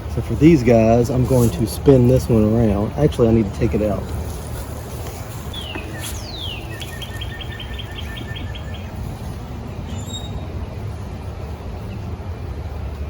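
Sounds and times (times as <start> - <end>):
steady low rumble: 0.0 - 13.0
songbird whistles and trill: 5.5 - 9.0, 9.8 - 10.5.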